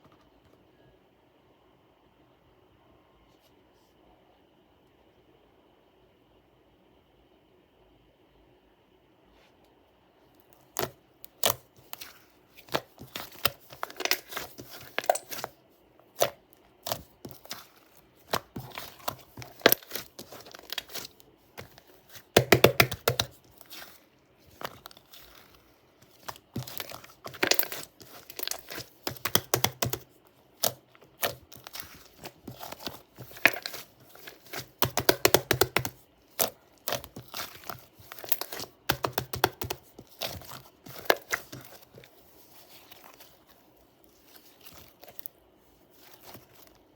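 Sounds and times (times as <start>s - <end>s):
slime crackling and popping: 16.2s - 42.0s.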